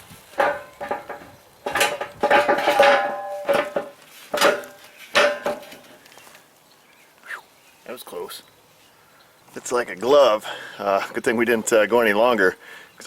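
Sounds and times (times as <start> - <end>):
steel wheel parts clanking: 0.3 - 6.0.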